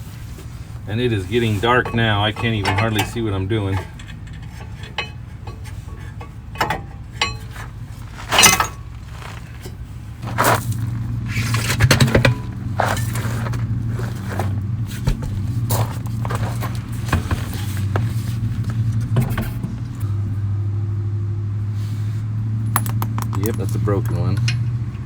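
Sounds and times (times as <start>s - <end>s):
steady low hum: 0.0s - 21.0s
hand tools clinking on metal parts: 1.4s - 14.6s, 22.8s - 24.7s.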